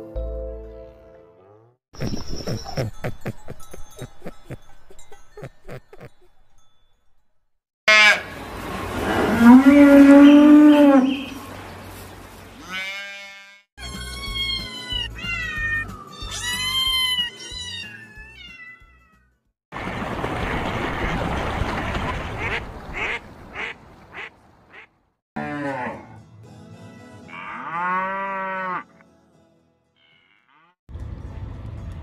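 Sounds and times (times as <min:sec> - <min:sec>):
cat meowing: 0:13.8 - 0:19.2
duck quacks: 0:22.4 - 0:24.9.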